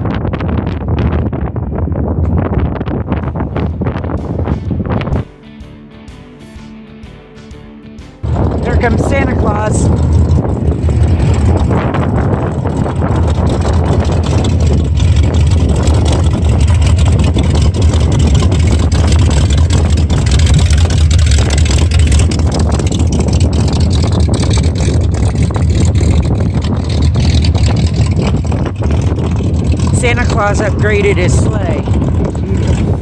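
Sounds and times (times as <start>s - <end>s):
vehicle engine rumbling: 0.0s - 33.0s.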